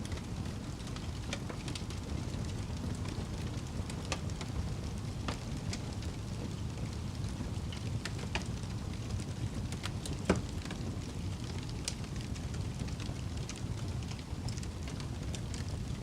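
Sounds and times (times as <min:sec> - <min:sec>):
fire burning with crackles: 0:00.0 - 0:16.0.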